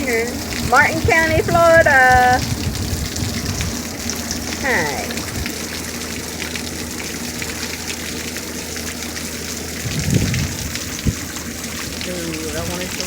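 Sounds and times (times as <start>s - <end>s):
low rumble: 0.0s - 5.6s, 9.8s - 11.3s
heavy rain pouring: 0.0s - 13.0s.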